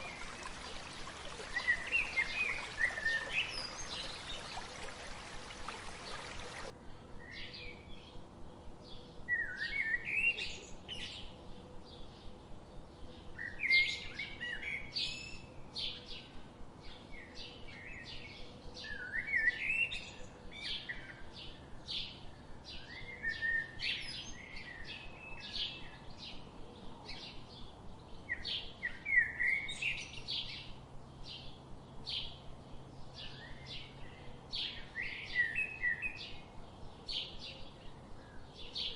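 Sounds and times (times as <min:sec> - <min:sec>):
birds singing and chirping: 0:00.0 - 0:06.7.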